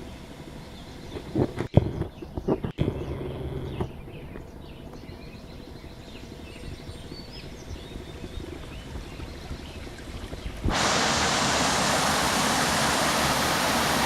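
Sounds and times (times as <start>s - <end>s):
low outdoor rumble: 0.0s - 14.0s
bird chirps: 0.6s - 9.9s.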